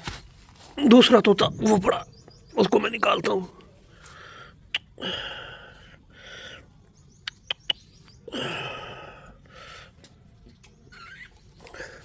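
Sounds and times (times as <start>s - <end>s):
sharp clicks: 7.2s - 7.8s.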